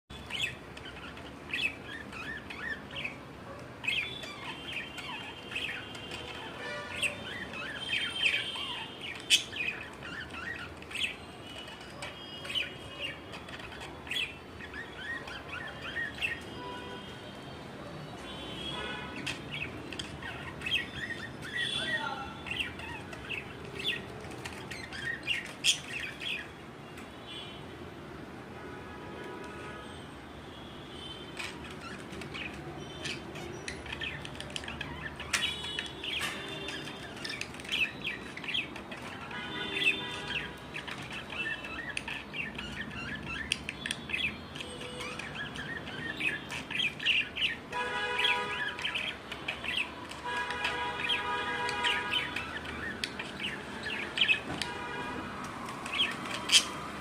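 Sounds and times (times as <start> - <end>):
loud sharp bird calls: 0.1 - 27.7, 30.6 - 57.0
budgerigars chattering: 31.4 - 54.5, 55.8 - 56.8.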